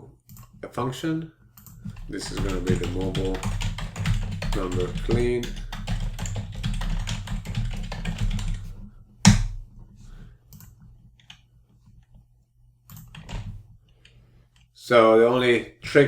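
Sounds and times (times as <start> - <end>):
computer keyboard typing: 1.6 - 8.7, 12.9 - 13.5.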